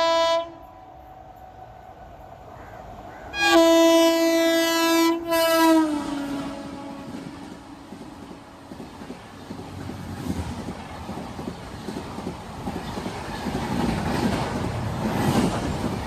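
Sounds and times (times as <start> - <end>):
train horn blast: 0.0 - 0.9, 3.3 - 7.8
train running by: 0.0 - 16.0.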